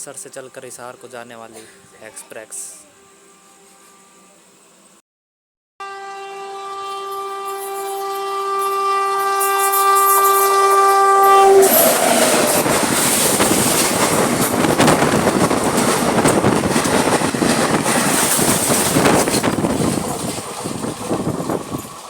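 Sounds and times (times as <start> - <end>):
train horn blast: 5.8 - 14.8
train rumbling past: 6.4 - 22.0
wheels clattering over rails: 11.6 - 22.0.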